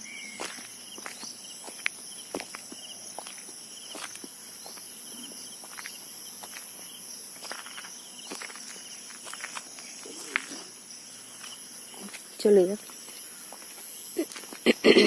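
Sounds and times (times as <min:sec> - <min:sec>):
footsteps on ground: 0:00.3 - 0:15.0
high-pitched insect drone: 0:03.2 - 0:15.0.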